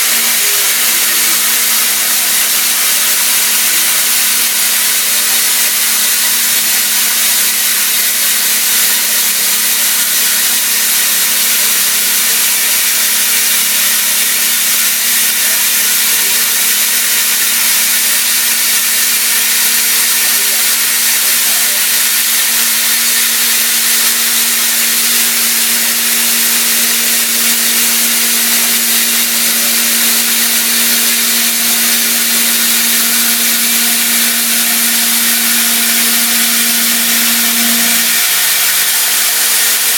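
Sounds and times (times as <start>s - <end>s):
coolant spray hiss: 0.0s - 39.9s
metal cutting noise: 0.0s - 39.9s
machine hum: 20.7s - 39.9s.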